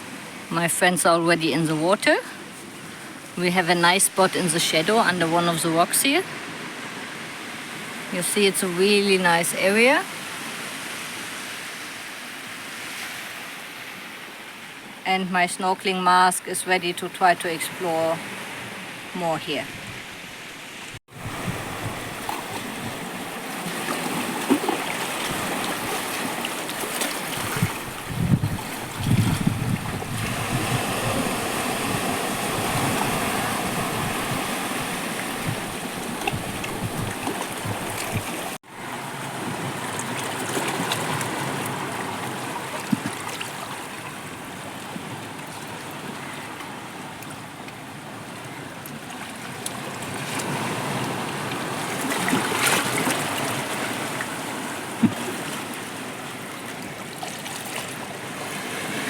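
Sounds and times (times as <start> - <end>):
sea surf washing on shore: 17.2 - 59.0
wind buffeting microphone: 21.1 - 38.6.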